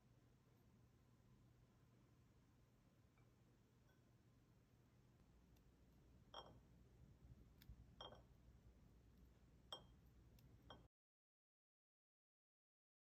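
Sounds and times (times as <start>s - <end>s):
faint light clinks: 6.2s - 6.8s, 7.6s - 8.4s, 9.7s - 10.9s.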